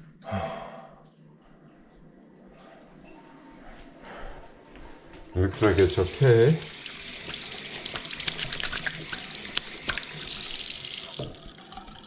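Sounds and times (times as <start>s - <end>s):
shower water running and splashing: 5.6s - 12.0s.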